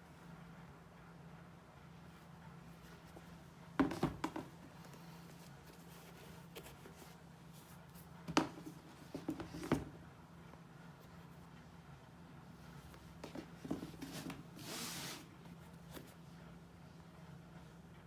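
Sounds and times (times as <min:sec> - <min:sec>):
knocks and taps of handling: 0:03.8 - 0:04.6, 0:08.3 - 0:09.9.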